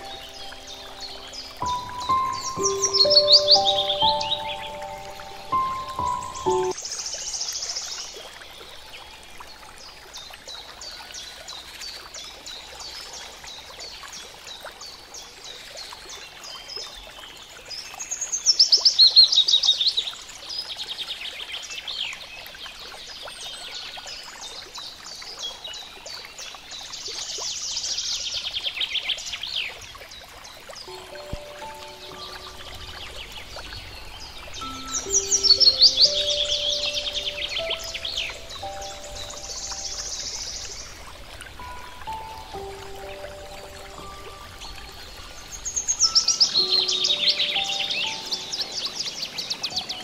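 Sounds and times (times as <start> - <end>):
bird rapid falling trills: 0.0 - 6.8, 30.8 - 50.0
birds chirping: 0.0 - 6.8, 30.7 - 50.0
background hiss: 0.0 - 7.6, 30.8 - 50.0.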